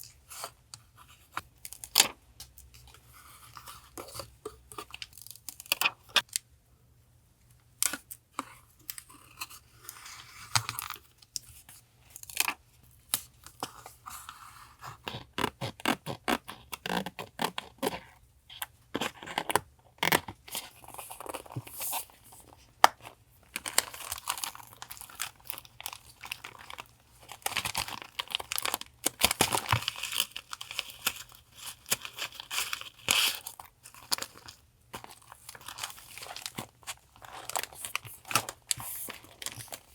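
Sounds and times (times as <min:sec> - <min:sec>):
paper crinkling and rustling: 0:20.6 - 0:39.9.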